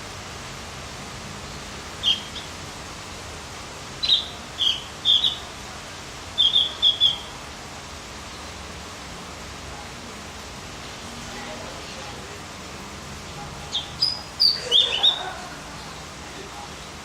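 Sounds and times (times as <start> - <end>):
steady hiss: 0.0 - 17.0
songbird chirping: 1.5 - 2.6, 4.0 - 5.5, 6.4 - 7.4, 13.3 - 16.2.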